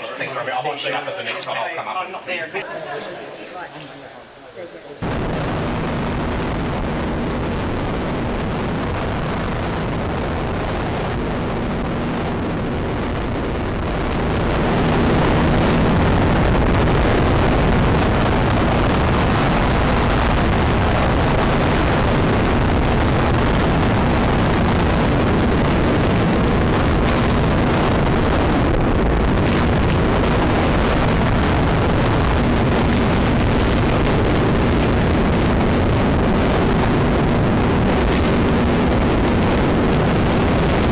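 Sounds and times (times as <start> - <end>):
heavy wind noise: 5.0 - 40.9.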